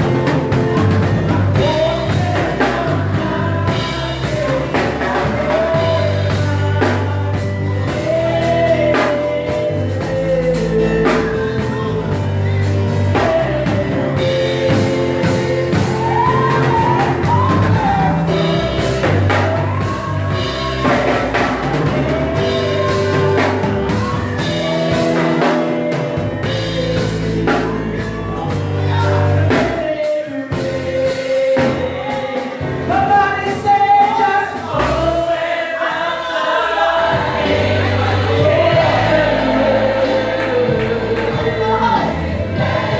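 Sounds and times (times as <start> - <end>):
keyboard held notes: 0.0 - 34.2
bass: 0.0 - 35.4, 36.7 - 42.9
drum kit: 0.0 - 42.9
gospel singing: 0.0 - 42.9.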